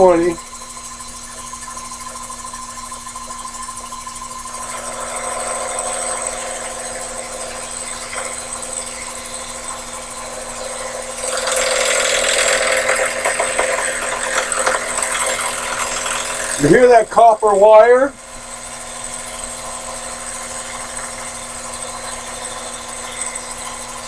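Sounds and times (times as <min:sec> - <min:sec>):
lathe cutting metal: 0:00.0 - 0:24.0.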